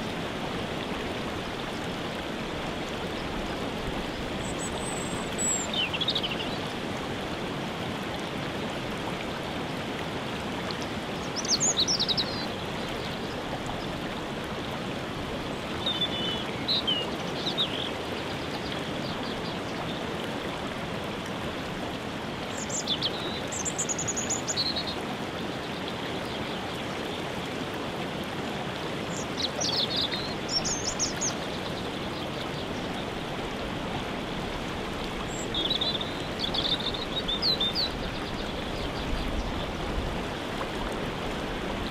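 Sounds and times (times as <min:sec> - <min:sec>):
waterfall rushing: 0:00.0 - 0:41.9
songbird singing: 0:03.1 - 0:06.7, 0:11.2 - 0:13.3, 0:15.5 - 0:20.0, 0:22.5 - 0:25.0, 0:29.1 - 0:33.2, 0:35.2 - 0:39.7.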